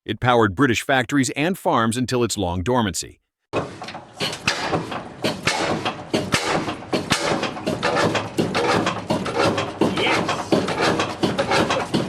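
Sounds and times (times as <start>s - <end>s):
diesel engine knocking: 4.2s - 12.0s.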